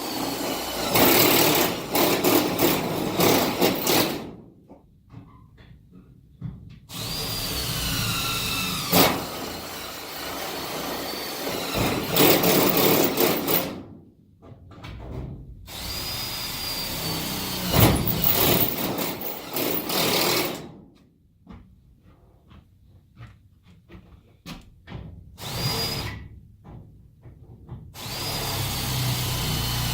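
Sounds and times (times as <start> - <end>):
power drill whining: 0.0 - 4.1, 6.9 - 13.7, 15.7 - 20.6, 25.4 - 26.2, 28.0 - 29.9
drill bit knocking and rattling: 0.0 - 4.3, 6.9 - 13.9, 15.7 - 20.8, 28.0 - 29.9.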